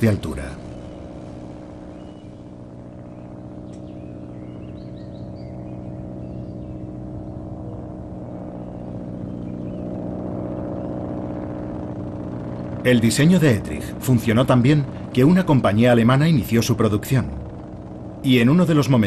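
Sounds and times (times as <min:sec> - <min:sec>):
propeller plane engine droning: 0:00.0 - 0:19.0
faint bird chirps: 0:00.1 - 0:11.1.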